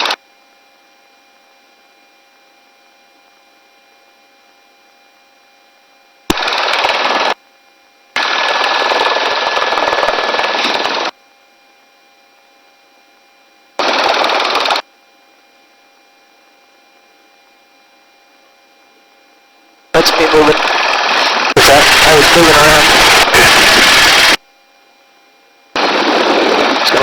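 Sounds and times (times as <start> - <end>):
low intercom hum: 19.6 - 24.4, 25.8 - 27.0
intercom microphone rushing noise: 20.0 - 20.8, 21.4 - 24.4, 25.8 - 27.0.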